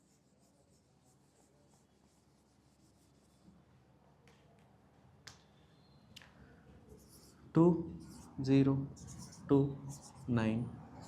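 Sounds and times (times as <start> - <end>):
pen scratching on paper: 6.9 - 7.4, 8.0 - 10.4.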